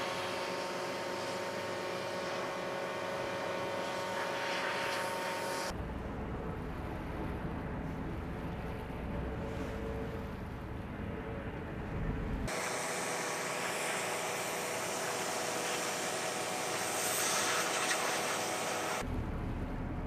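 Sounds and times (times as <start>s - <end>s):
machinery hum with whine: 0.0s - 20.0s
low steady rumble: 5.7s - 12.5s, 19.0s - 20.0s.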